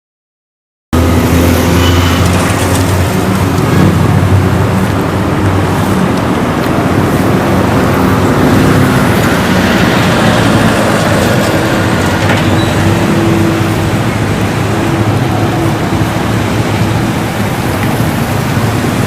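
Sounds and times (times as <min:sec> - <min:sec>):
loud rushing and rumbling noise: 0:01.0 - 0:19.0.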